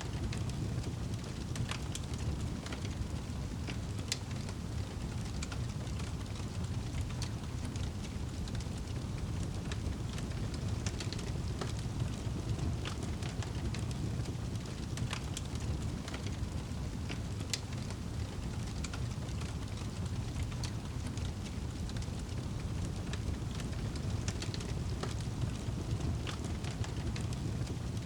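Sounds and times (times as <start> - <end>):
fire crackling and popping: 0.0 - 28.0
flames rumbling in fireplace: 0.0 - 28.0.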